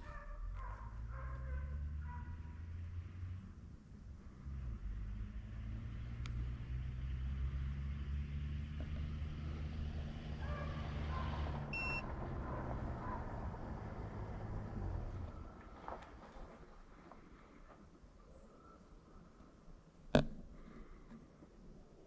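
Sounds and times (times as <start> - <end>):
vehicle engine humming: 0.0 - 16.8
short electronic beep: 11.8 - 12.0.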